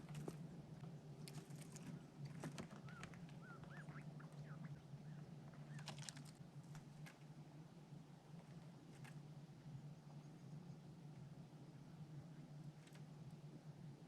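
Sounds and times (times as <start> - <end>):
small birds chirping: 0.0 - 7.0.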